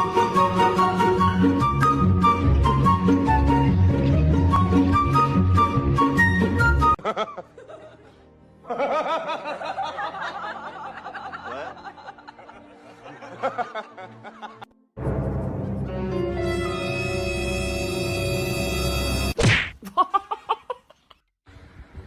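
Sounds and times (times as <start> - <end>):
background music: 0.0 - 19.4
person laughing: 19.8 - 21.3.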